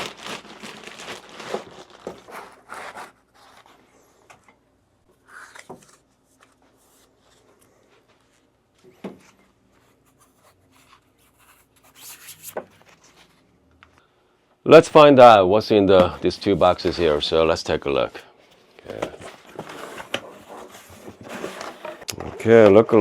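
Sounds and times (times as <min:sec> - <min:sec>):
rub or scrape: 0:10.0 - 0:12.6.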